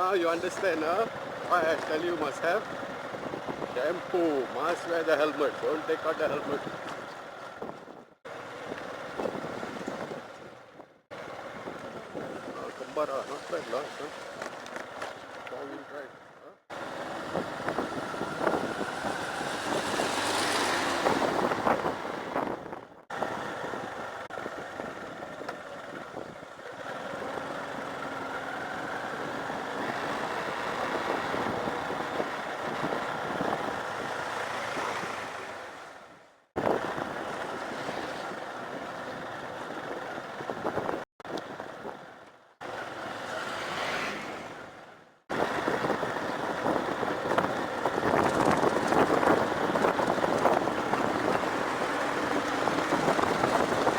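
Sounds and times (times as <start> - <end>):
vehicles passing on dirt road: 0.0 - 53.9
wind on microphone: 6.4 - 14.5, 16.7 - 27.6, 28.9 - 42.1, 45.3 - 53.9.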